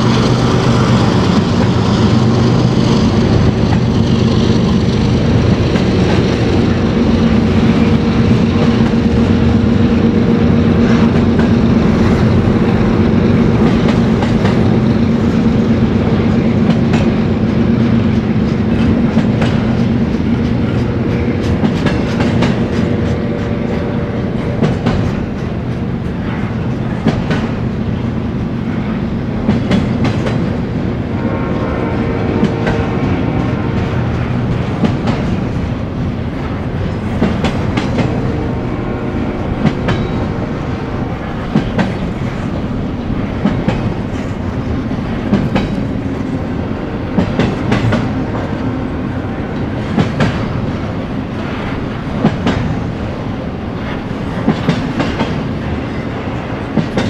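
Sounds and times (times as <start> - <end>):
train cars rumbling past: 0.0 - 57.0.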